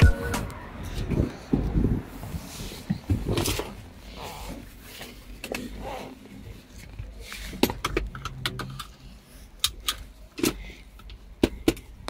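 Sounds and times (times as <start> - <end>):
seat belt buckle clicks and rattles: 7.6 - 9.0.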